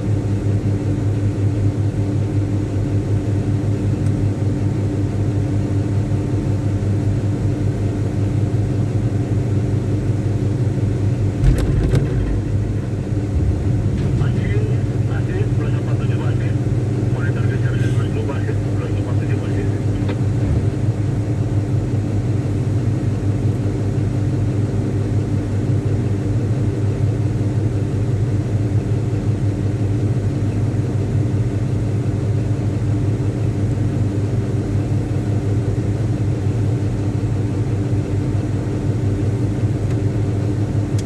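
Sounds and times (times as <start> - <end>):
diesel engine droning: 11.4 - 24.2.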